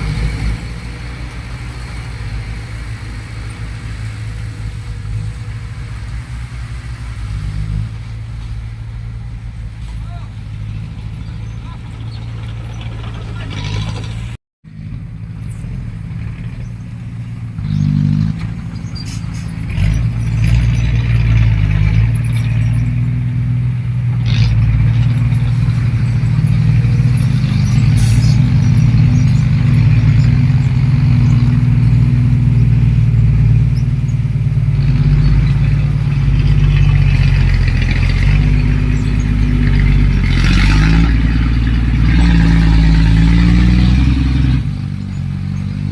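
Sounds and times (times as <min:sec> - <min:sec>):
heavy machinery diesel engine running: 0:00.0 - 0:45.9.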